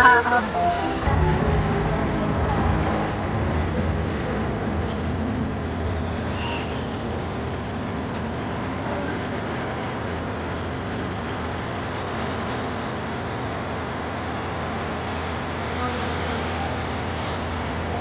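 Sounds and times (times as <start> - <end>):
crowd hubbub: 0.0 - 7.5
constant low hum: 0.0 - 18.0.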